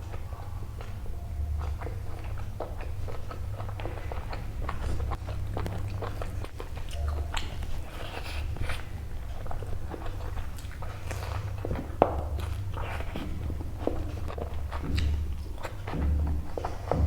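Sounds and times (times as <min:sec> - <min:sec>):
steady low hum: 0:00.0 - 0:17.0
wet chewing and lip-smacking: 0:00.0 - 0:17.0.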